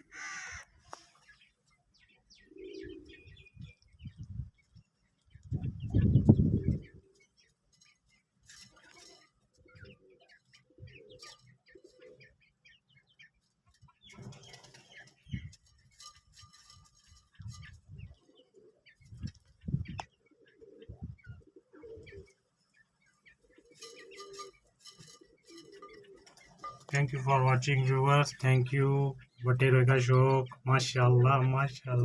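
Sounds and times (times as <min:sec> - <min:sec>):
quails chirping and cooing: 0:00.0 - 0:32.0
wing flapping and scuffling: 0:02.9 - 0:12.4, 0:13.4 - 0:22.4, 0:23.0 - 0:27.1.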